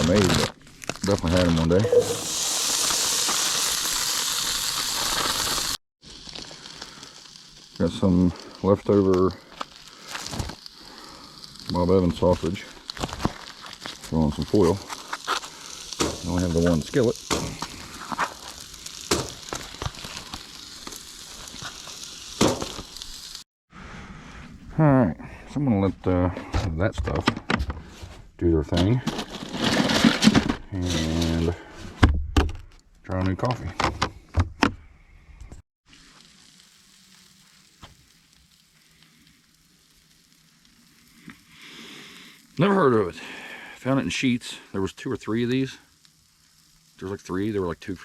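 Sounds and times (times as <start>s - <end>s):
food sizzling in a skillet: 1.8s - 23.5s, 35.9s - 48.0s.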